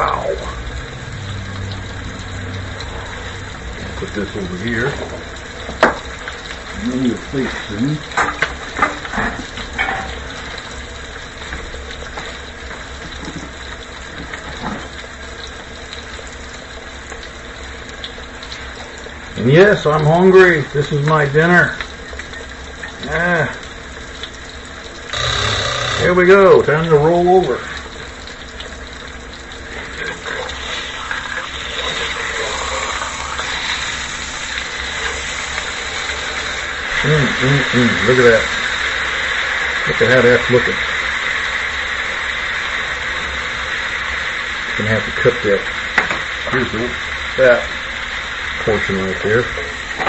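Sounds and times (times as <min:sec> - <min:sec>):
steak sizzling in a skillet: 0:29.6 - 0:48.7.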